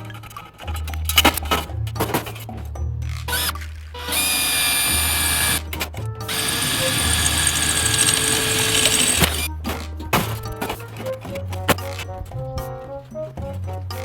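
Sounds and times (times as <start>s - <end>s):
power tool whining on steel: 4.0s - 5.7s, 6.3s - 9.5s.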